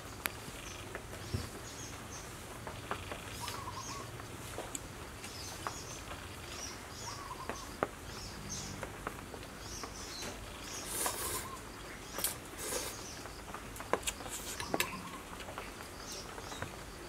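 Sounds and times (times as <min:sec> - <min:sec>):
birds chirping: 0:00.1 - 0:17.0
low warbled bird call: 0:03.3 - 0:04.1, 0:07.0 - 0:07.7, 0:10.8 - 0:11.7, 0:14.5 - 0:15.4.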